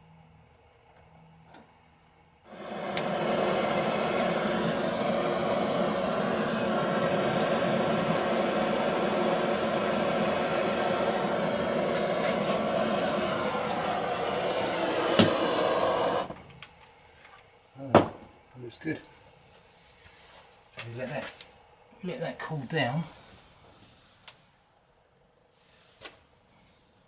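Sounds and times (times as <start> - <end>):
blowtorch hissing: 2.5 - 16.4
blowtorch lighting: 2.5 - 16.8.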